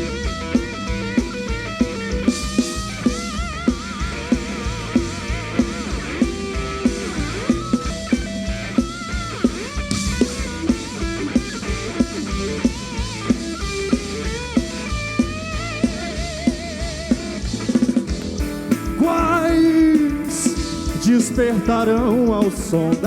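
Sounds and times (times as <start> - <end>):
bass guitar: 0.0 - 23.0
lead guitar solo: 0.0 - 23.0
steady drum beat: 0.0 - 23.0.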